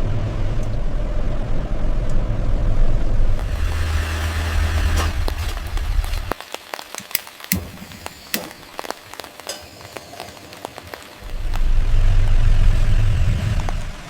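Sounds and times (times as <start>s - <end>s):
loud low rumble: 0.0s - 6.3s, 11.2s - 14.0s
rain falling with drips: 0.0s - 14.0s.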